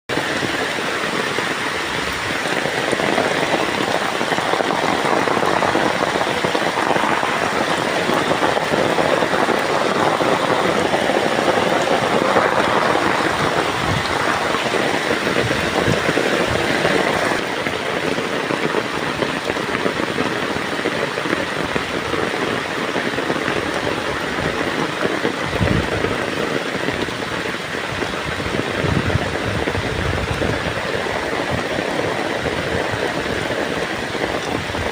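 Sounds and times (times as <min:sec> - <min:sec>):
heavy rain: 0:00.1 - 0:34.9.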